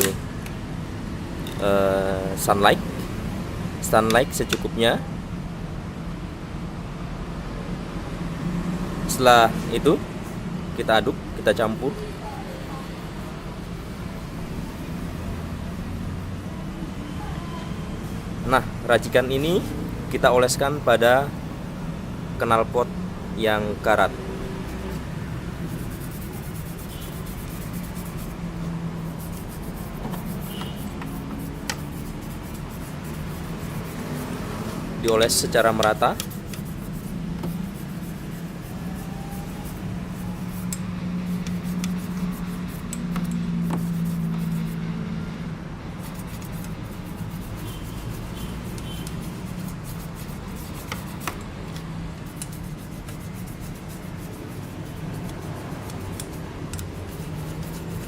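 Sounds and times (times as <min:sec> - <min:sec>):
steady low hum: 0:20.9 - 0:58.0
toothbrush scrubbing metal pipe: 0:23.8 - 0:44.8, 0:46.0 - 0:51.4, 0:52.2 - 0:58.0.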